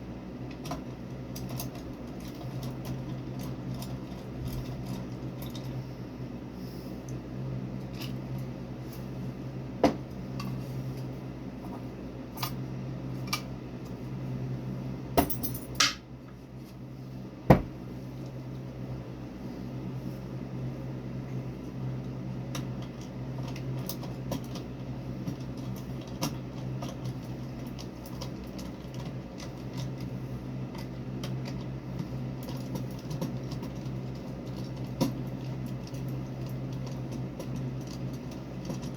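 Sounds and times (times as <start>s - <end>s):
steady low hum: 0.0s - 38.9s
clinking of small metal hardware: 15.2s - 16.0s.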